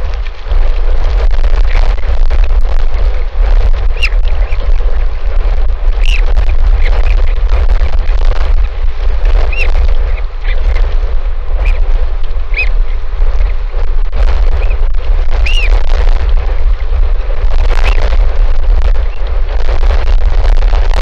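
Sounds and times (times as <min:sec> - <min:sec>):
wind buffeting microphone: 0:00.0 - 0:21.0
high bird chirps: 0:12.5 - 0:12.8, 0:15.4 - 0:15.7.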